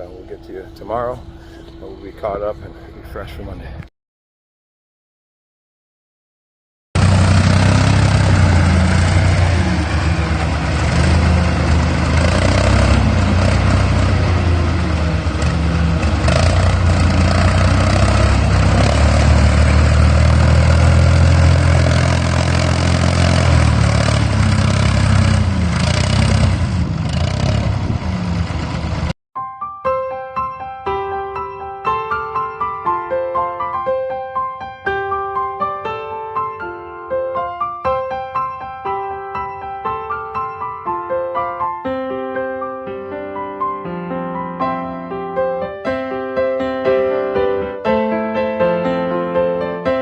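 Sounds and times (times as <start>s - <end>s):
vehicle engine revving: 7.0s - 29.1s.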